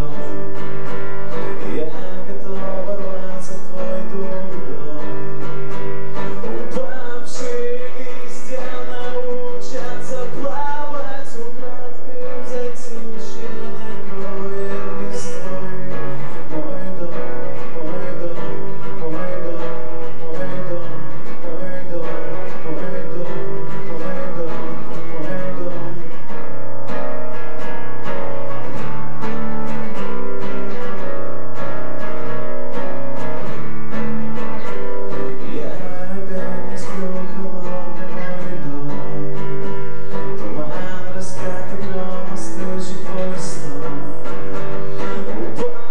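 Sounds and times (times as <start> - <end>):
acoustic guitar playing: 0.0 - 45.9.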